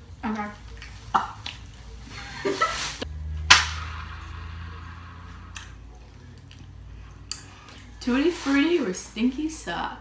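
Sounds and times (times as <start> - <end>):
sharp snap: 3.4 - 4.4.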